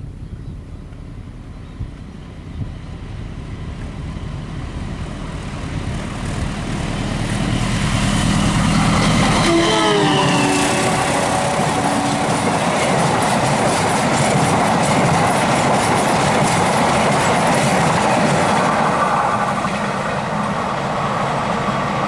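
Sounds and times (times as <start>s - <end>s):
train rumble: 0.0s - 22.0s
locomotive horn tones: 9.2s - 12.8s.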